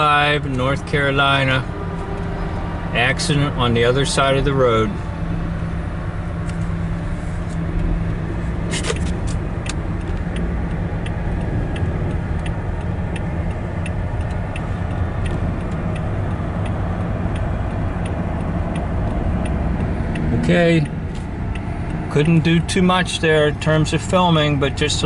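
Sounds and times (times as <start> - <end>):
road and engine drone: 0.0 - 25.0
faint regular tick: 8.8 - 22.6.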